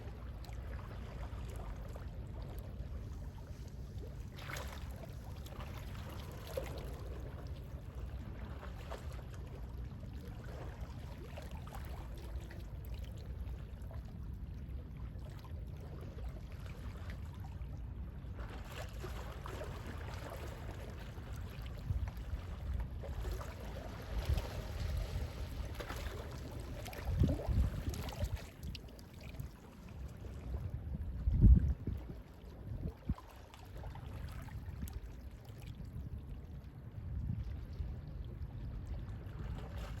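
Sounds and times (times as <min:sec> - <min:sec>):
sea waves lapping at shore: 0:00.0 - 0:14.5, 0:15.1 - 0:31.2
low steady rumble: 0:00.0 - 0:40.0.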